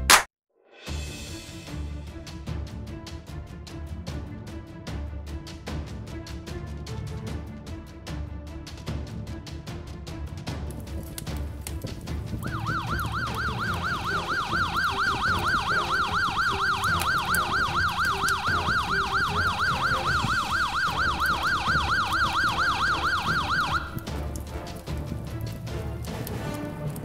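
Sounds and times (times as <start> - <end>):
background music: 0.8 - 27.0
fire engine siren yelping: 12.4 - 24.1.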